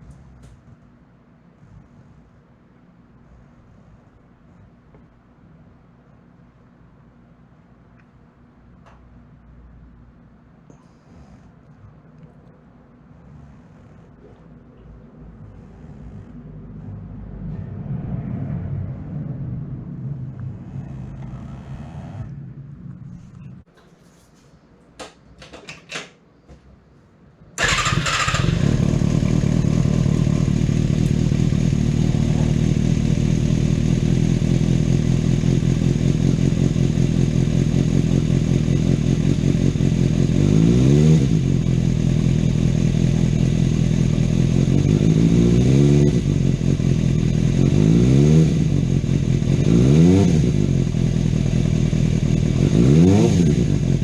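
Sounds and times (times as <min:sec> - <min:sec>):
motorcycle engine idling: 0:27.6 - 0:40.6, 0:41.3 - 0:45.6, 0:46.2 - 0:47.9, 0:48.6 - 0:49.8, 0:50.4 - 0:52.8
engine throttle blips: 0:27.6 - 0:54.0.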